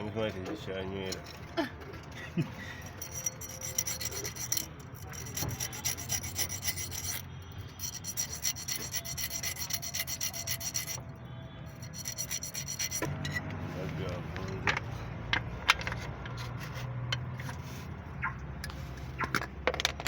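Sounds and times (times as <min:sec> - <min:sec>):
hand tool rasping on metal: 0:02.7 - 0:11.1, 0:11.7 - 0:13.5.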